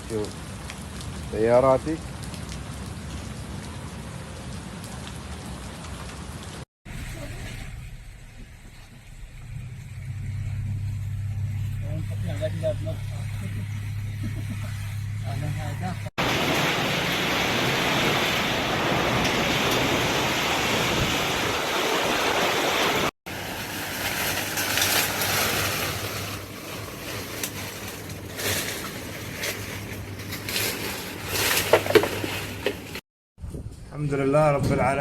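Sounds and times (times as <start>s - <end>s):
heavy rain: 0.0s - 10.7s, 16.2s - 30.6s
low steady hum: 6.9s - 16.1s
strong wind: 16.2s - 23.1s, 33.4s - 35.0s.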